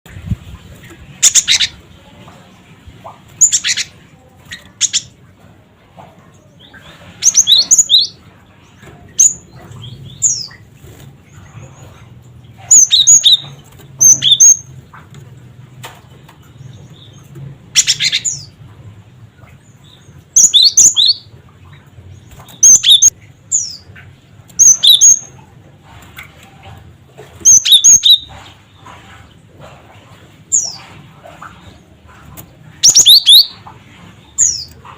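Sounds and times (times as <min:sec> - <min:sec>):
bird rasping calls: 0:12.6 - 0:14.7, 0:27.4 - 0:29.2, 0:32.8 - 0:33.6.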